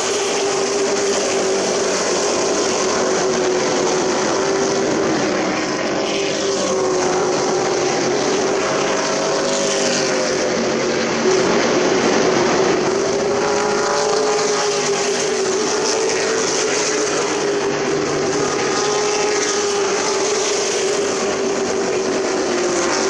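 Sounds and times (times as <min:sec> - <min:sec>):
racing truck engines droning: 0:00.0 - 0:23.0.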